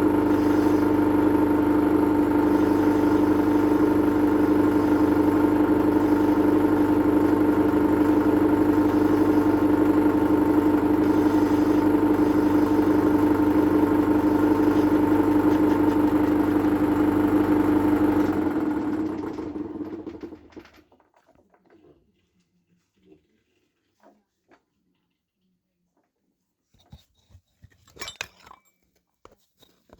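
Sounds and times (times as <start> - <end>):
metal lathe running: 0.0 - 20.3.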